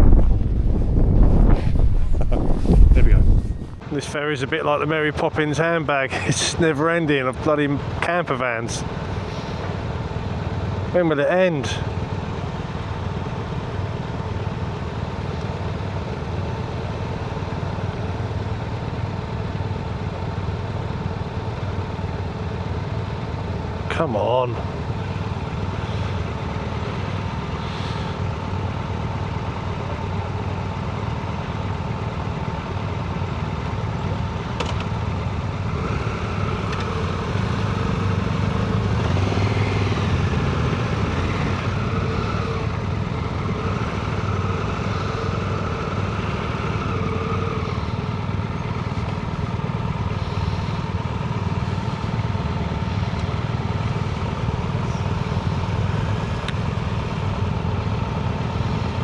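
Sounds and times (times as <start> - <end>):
vehicle passing by: 0.0 - 3.8, 35.8 - 57.3
vehicle engines running: 0.0 - 59.0.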